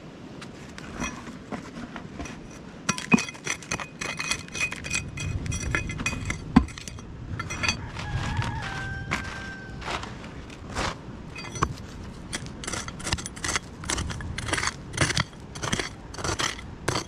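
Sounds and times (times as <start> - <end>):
hard objects clinking and knocking: 2.2 - 8.1, 11.3 - 17.0.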